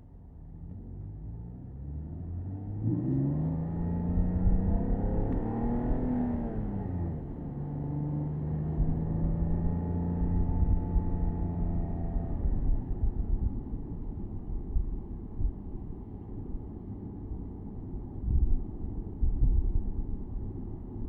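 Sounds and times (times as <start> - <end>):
road and wind rumble: 0.0 - 21.0
car engine revving: 2.5 - 12.4.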